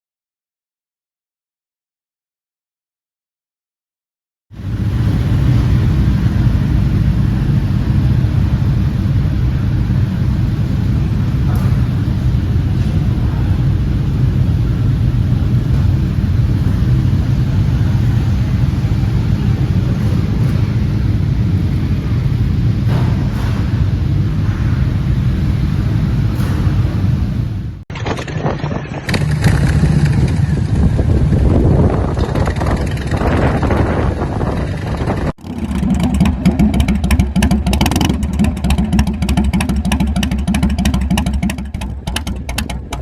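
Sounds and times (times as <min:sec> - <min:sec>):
motorcycle engine cruising: 0:04.5 - 0:43.0
wind rushing: 0:16.2 - 0:38.7.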